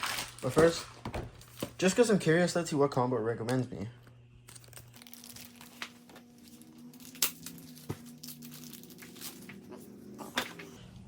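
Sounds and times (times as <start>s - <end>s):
packaging crinkling and rustling: 0.0s - 2.0s, 4.5s - 10.8s.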